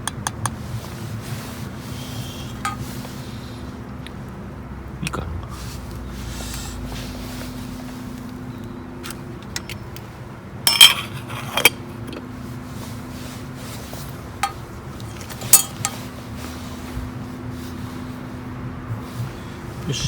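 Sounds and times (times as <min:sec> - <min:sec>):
steady low hum: 0:00.0 - 0:20.0
metal cookware knocking and clinking: 0:10.7 - 0:11.8.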